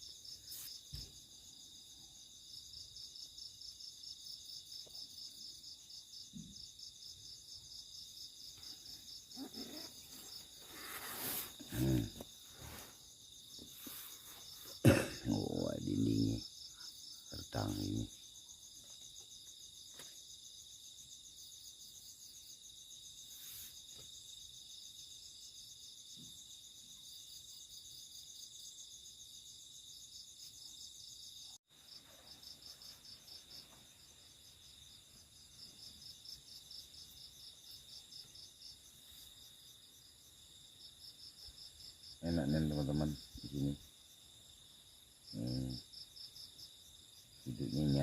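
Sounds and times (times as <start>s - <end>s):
crickets chirping: 0.0s - 48.0s.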